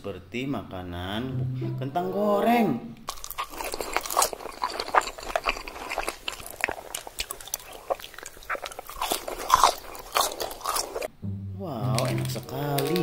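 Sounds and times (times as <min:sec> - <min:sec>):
person chewing french fries: 0:03.1 - 0:11.1, 0:11.8 - 0:13.0.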